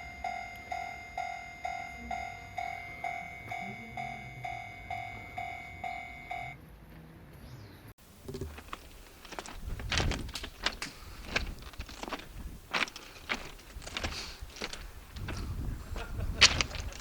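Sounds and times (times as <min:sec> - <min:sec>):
level crossing warning bell: 0:00.0 - 0:06.6.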